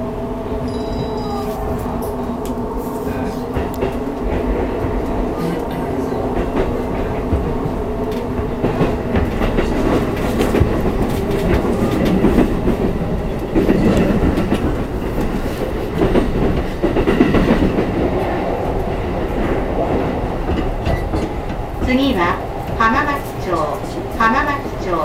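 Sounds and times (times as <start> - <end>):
wind rushing through train gangway: 0.0 - 25.0.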